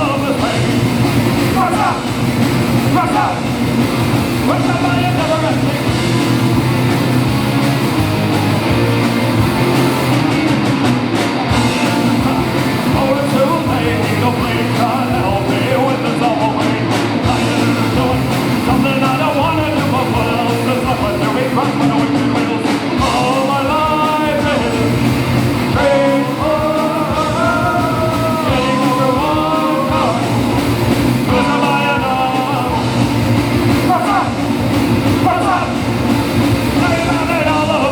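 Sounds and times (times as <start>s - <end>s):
rock band playing live: 0.0s - 37.9s
person singing: 11.6s - 33.0s.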